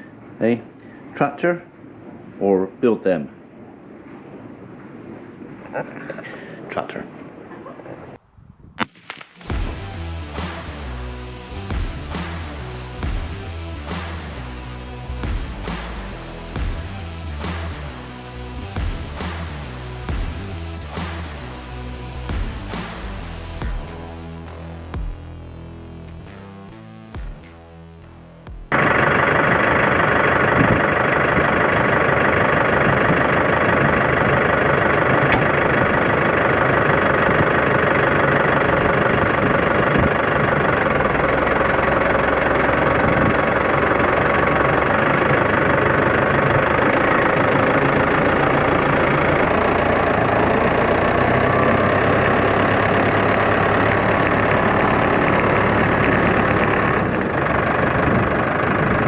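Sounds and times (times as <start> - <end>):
tractor engine running: 28.7 - 59.0.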